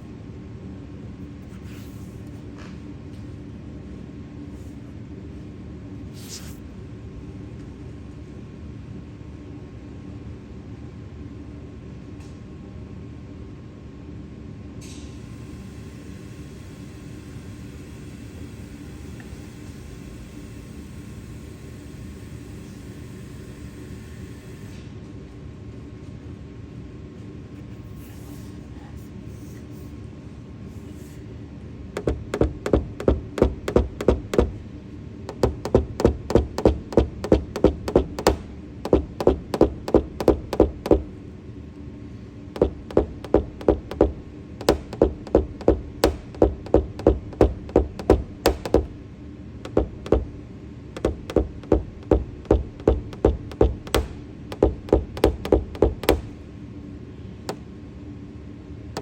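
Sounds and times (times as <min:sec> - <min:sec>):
light hammer taps on sheet metal: 0:32.0 - 0:34.6, 0:35.3 - 0:41.1, 0:42.6 - 0:49.0, 0:49.7 - 0:50.3, 0:51.0 - 0:56.4.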